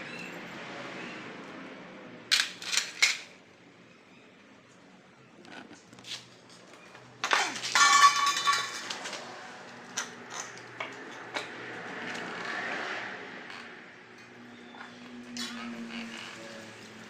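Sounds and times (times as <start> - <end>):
metal pieces clattering: 2.3 - 3.3, 7.2 - 9.3.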